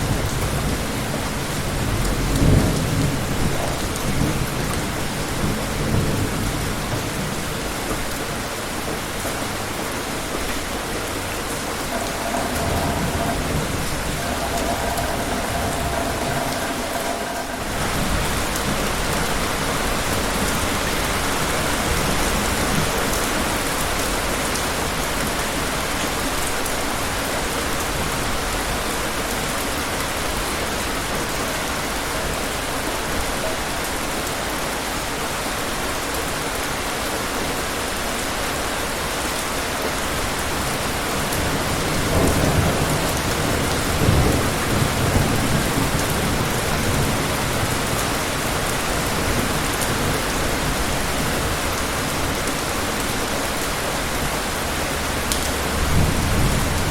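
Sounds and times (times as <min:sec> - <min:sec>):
low thunder rumbling: 0:00.0 - 0:08.1, 0:08.8 - 0:23.6
heavy rain falling: 0:00.0 - 0:56.9.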